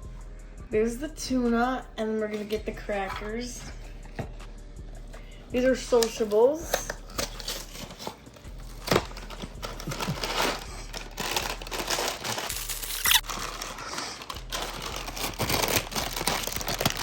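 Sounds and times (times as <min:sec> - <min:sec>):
plastic packaging crinkling: 0:05.8 - 0:17.0.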